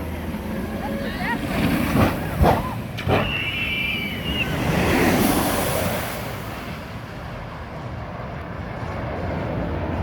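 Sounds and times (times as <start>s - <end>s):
vehicle passing: 4.1s - 10.0s.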